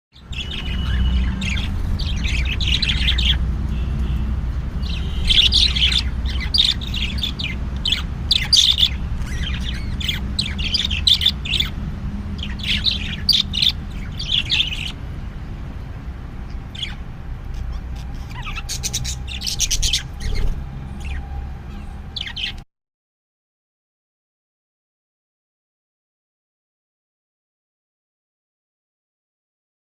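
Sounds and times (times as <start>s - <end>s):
small birds chirping: 0.1s - 22.7s.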